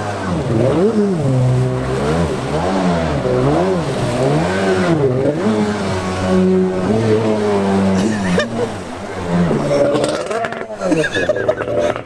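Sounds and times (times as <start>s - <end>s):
jet ski engine revving: 0.0s - 12.0s.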